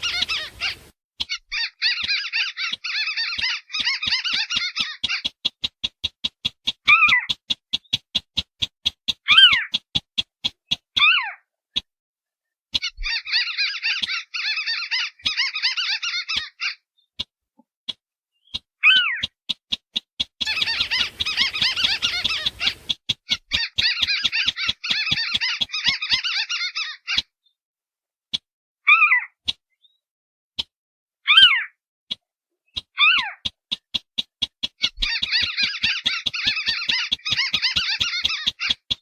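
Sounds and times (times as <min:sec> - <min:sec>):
downward-sliding bird call: 0:00.0 - 0:05.7, 0:20.4 - 0:27.3, 0:34.7 - 0:39.0
bird chattering trills: 0:00.0 - 0:08.0, 0:20.4 - 0:27.3, 0:32.8 - 0:39.0
sharp clicks: 0:01.2 - 0:11.0, 0:17.2 - 0:26.3, 0:32.1 - 0:39.0.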